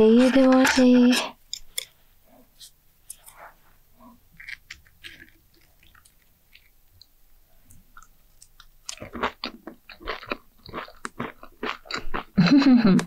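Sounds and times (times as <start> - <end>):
crunchy chewing: 4.0 - 12.4.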